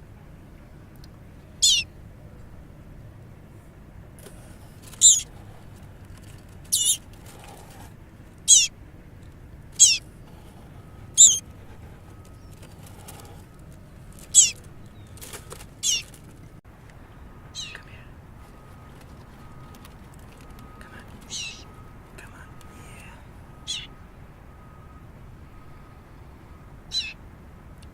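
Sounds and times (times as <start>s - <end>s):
baby bird cheeping: 1.6s - 1.9s, 4.8s - 5.4s, 6.6s - 7.1s, 8.4s - 8.8s, 9.8s - 10.1s, 11.1s - 13.4s, 14.2s - 16.2s, 17.6s - 18.0s, 21.2s - 21.8s, 23.0s - 24.0s, 26.9s - 27.2s.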